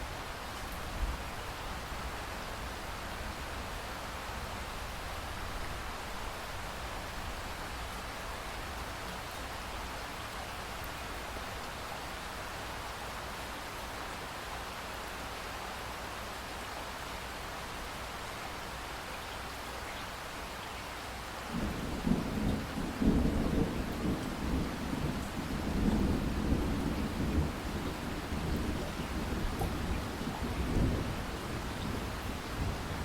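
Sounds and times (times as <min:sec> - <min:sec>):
steady rain falling: 0:00.0 - 0:33.0
thunder rolling: 0:21.5 - 0:33.0.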